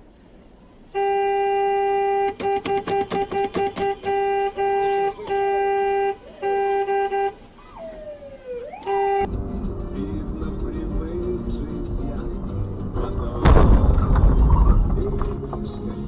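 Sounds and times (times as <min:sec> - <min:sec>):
car horn blasts: 0:00.9 - 0:07.5, 0:08.8 - 0:09.3
rapid short car horn honks: 0:01.0 - 0:07.4, 0:08.8 - 0:09.3.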